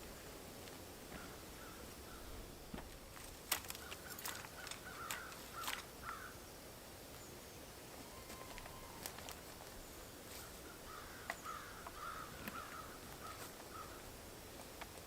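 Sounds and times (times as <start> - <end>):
faint bird calls: 1.1 - 2.4, 3.7 - 6.5, 7.2 - 14.2.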